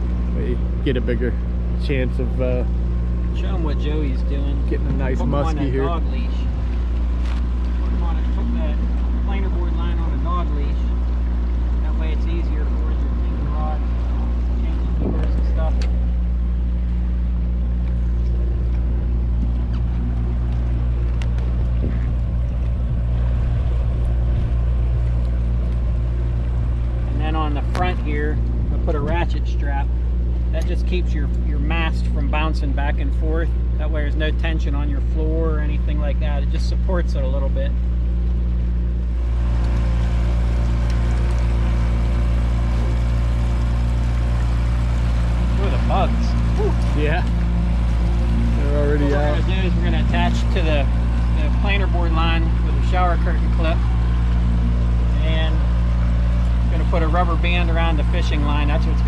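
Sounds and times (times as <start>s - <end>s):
boat motor droning: 0.0s - 59.0s.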